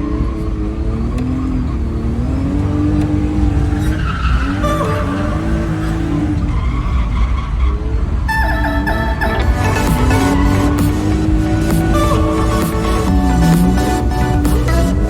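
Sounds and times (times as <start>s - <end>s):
car engine revving hard: 0.0s - 8.4s, 9.1s - 15.0s
tyres skidding: 0.0s - 15.0s
music: 8.5s - 15.0s.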